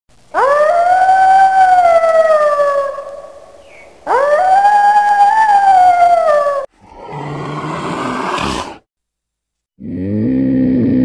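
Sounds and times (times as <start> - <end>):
wolf howling: 0.3 - 8.8.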